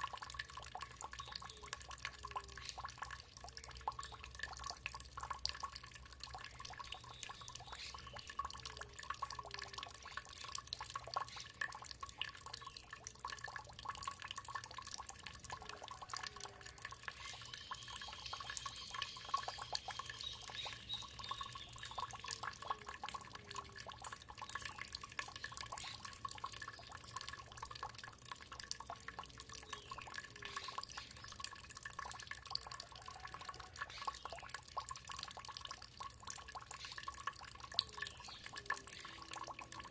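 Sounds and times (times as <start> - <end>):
water trickling and dripping: 0.0 - 39.9.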